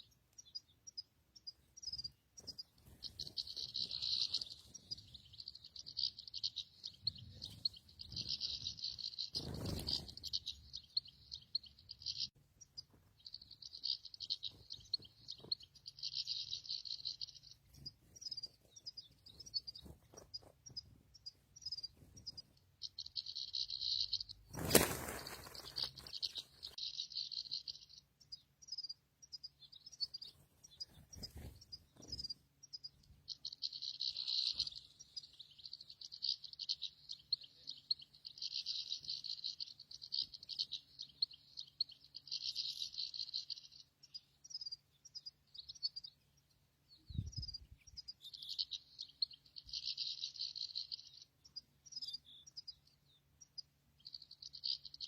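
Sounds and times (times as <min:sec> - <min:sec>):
goldfinch twittering song: 0:00.0 - 0:55.0.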